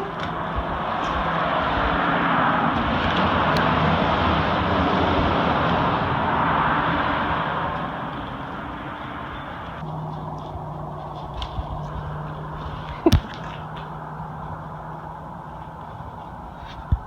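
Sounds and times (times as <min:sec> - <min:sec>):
passing road vehicle: 0:00.0 - 0:17.0.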